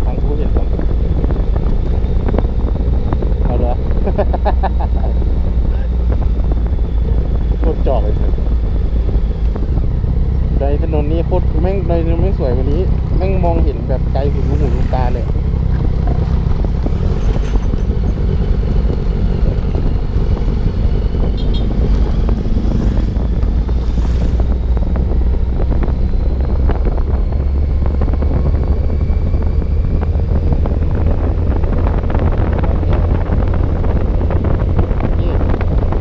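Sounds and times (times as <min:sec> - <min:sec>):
motorcycle engine running: 0:00.0 - 0:36.0
wind rush on microphone: 0:00.0 - 0:36.0.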